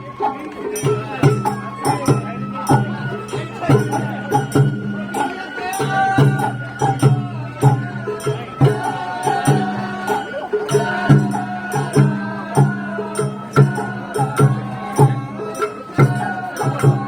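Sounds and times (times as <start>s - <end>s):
bamboo flute melody: 0.0s - 17.0s.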